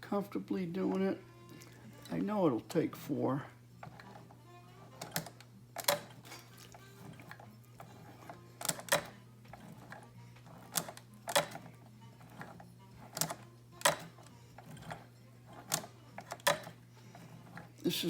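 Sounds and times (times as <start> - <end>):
sewing machine clacks: 4.9 - 6.4, 7.0 - 17.7.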